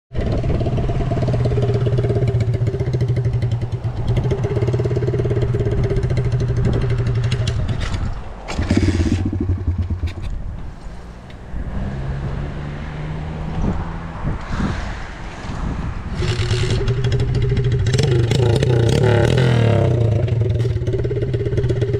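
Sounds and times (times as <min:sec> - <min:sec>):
small motorcycle running: 0:00.1 - 0:13.7, 0:16.1 - 0:21.9.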